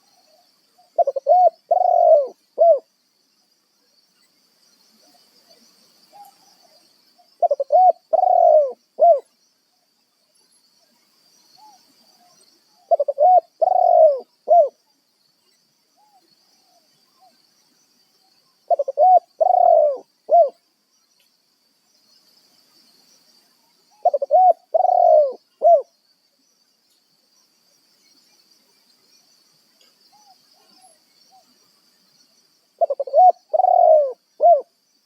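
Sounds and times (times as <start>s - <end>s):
dove cooing: 1.0s - 2.9s, 7.4s - 9.3s, 12.8s - 14.8s, 18.7s - 20.6s, 23.9s - 25.9s, 32.8s - 34.7s.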